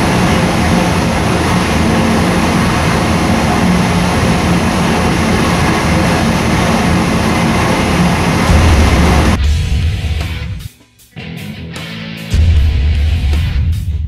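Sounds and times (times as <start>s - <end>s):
engine running steadily: 0.0s - 10.4s.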